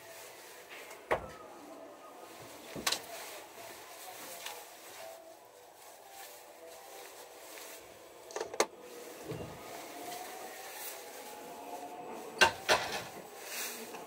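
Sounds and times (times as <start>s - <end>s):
train hum: 5.5s - 14.0s.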